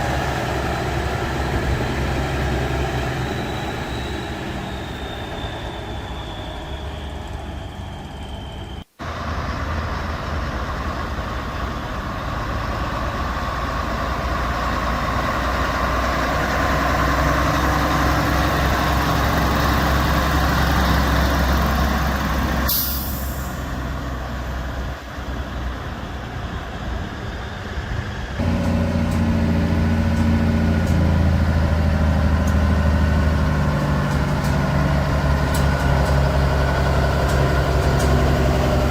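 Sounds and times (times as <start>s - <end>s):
heavy diesel truck engines: 0.0s - 38.9s
air brake hiss: 22.7s - 23.8s.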